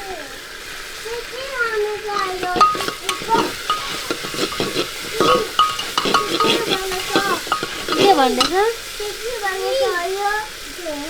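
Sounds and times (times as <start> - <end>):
chicken sizzling in a pan: 0.0 - 11.0
background voices: 2.1 - 8.8
utensil scraping metal pan: 2.1 - 8.8.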